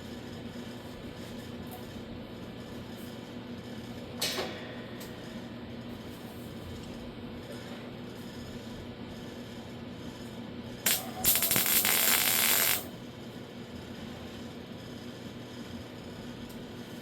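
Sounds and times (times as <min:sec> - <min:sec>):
welding crackle: 0:10.8 - 0:12.9.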